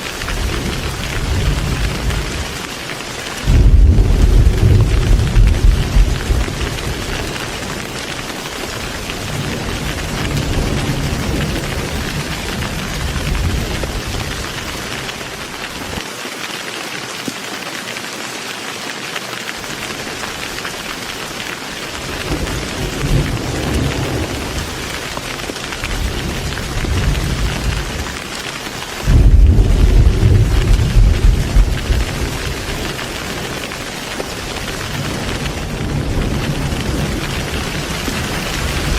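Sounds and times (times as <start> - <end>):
heavy rain hissing: 0.0 - 38.9
rolling thunder: 0.2 - 2.7, 3.4 - 15.0, 22.0 - 28.2, 29.0 - 38.9.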